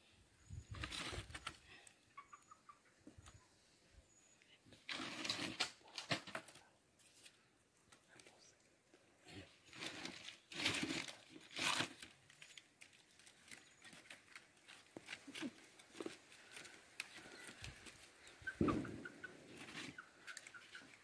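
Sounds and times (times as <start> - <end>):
dry sticks rustling and crackling: 9.7 - 21.0.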